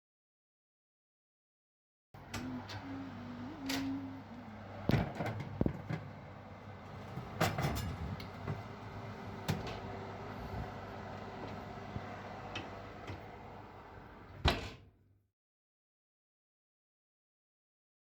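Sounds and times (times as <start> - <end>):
low hum: 2.2 - 14.3.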